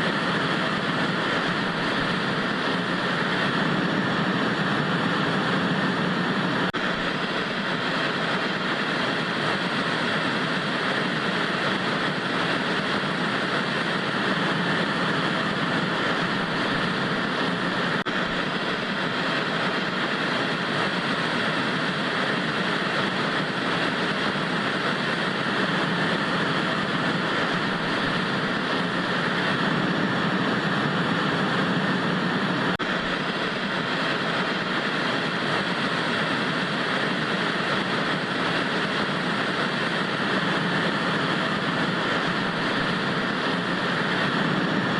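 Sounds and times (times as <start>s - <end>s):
tv static hiss: 0.0s - 44.9s.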